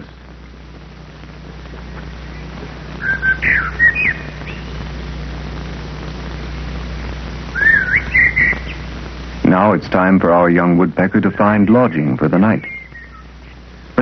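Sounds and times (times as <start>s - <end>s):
film soundtrack hum and hiss: 0.0s - 14.0s
whistled bird song: 3.0s - 4.7s, 7.5s - 8.8s, 11.9s - 13.3s.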